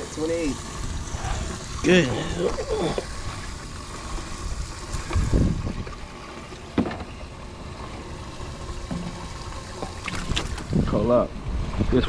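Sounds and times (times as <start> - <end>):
water sloshing around boat: 0.6 - 11.0
wind rumbling on microphone: 0.7 - 6.3, 8.5 - 12.0.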